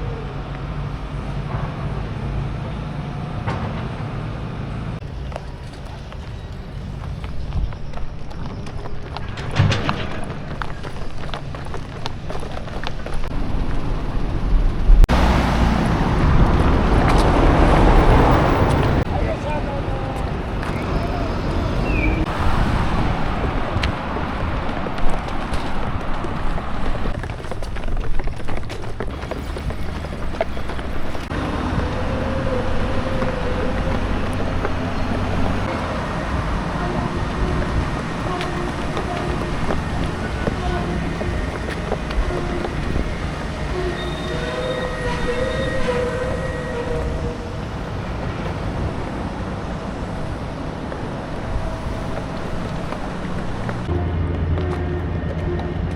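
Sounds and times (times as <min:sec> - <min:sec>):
ferry engine drone: 0:00.0 - 0:28.0, 0:29.0 - 0:55.9
low street rumble: 0:00.0 - 0:55.9
wind on microphone: 0:06.8 - 0:54.0
footsteps on hard surface: 0:23.4 - 0:31.4, 0:36.6 - 0:44.5, 0:50.7 - 0:55.9
held low tones: 0:49.9 - 0:55.9.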